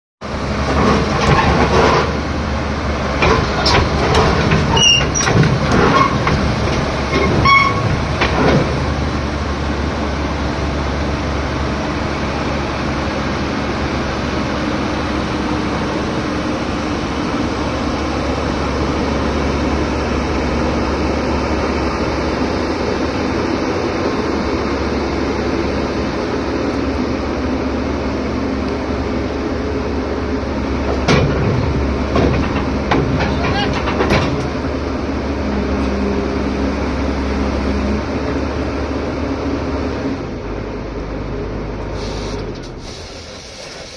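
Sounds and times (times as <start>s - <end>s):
heavy machinery engine rumble: 0.2s - 43.9s
metallic clanks and knocks: 3.2s - 9.0s, 30.8s - 34.7s.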